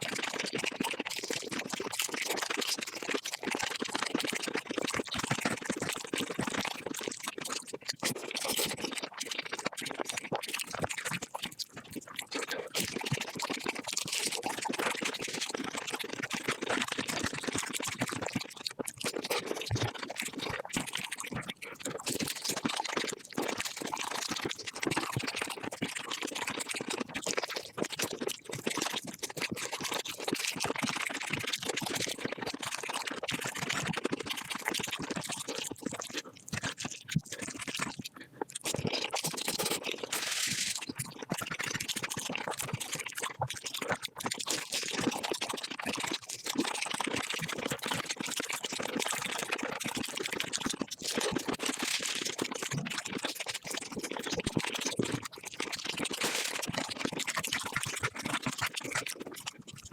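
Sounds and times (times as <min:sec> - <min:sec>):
sped-up eating crunching: 0:18.5 - 0:20.6, 0:34.0 - 0:46.1, 0:53.8 - 0:55.2, 0:55.8 - 0:59.9.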